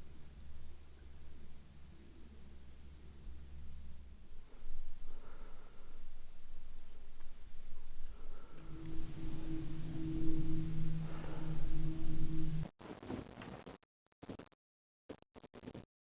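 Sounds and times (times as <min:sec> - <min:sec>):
crickets trilling: 0:00.0 - 0:12.6
steady low hum: 0:00.0 - 0:12.6.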